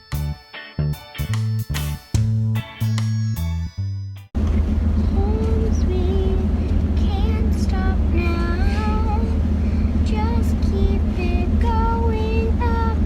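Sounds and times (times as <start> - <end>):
low engine drone: 4.4 - 13.0
person singing a melody: 5.0 - 9.4.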